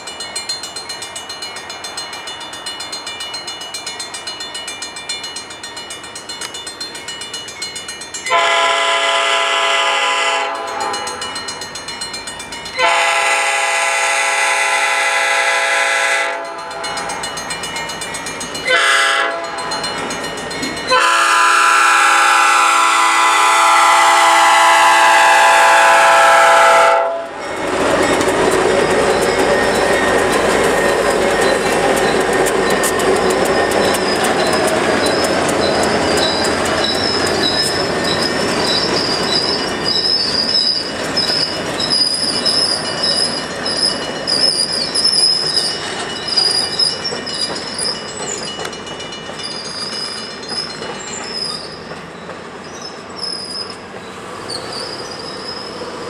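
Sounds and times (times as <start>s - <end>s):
locomotive air horn chord: 8.3s - 11.2s, 12.8s - 17.0s, 18.7s - 19.6s, 20.9s - 27.4s
flanges squealing: 27.2s - 56.0s
train wheels clicking over rails: 27.3s - 56.0s.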